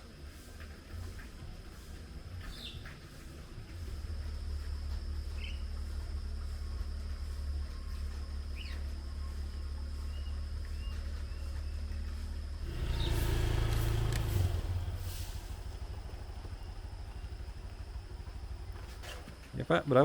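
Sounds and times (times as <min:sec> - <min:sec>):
high insect drone: 0:00.0 - 0:20.0
motorcycle engine running: 0:00.0 - 0:20.0
birds chirping: 0:01.7 - 0:06.6, 0:07.2 - 0:20.0.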